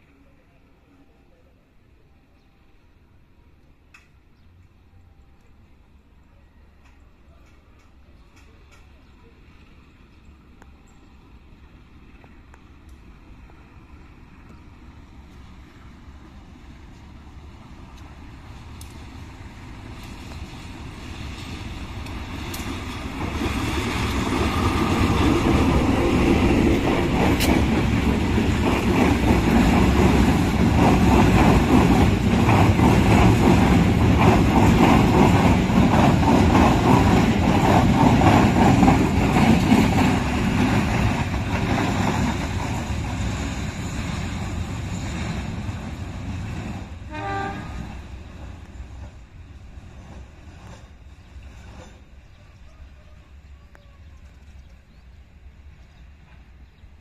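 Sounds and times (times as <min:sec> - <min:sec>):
locomotive engine passing: 0:11.2 - 0:57.0.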